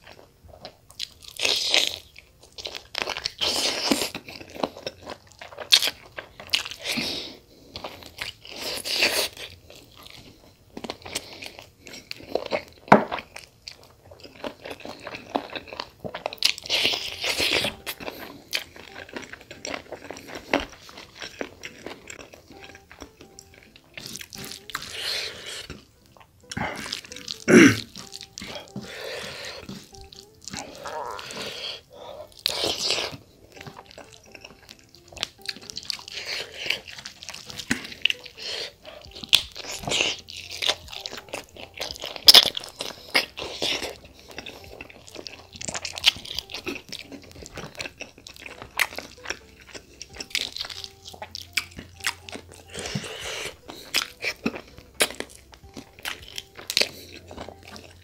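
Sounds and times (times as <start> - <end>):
chewing and crunching: 0.0 - 58.0
wet mouth sounds: 14.5 - 58.0.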